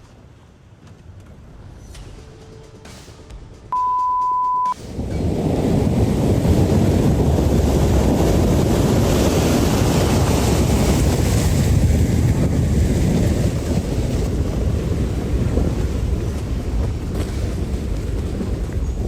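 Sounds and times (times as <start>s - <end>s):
strong wind on microphone: 4.8s - 19.0s.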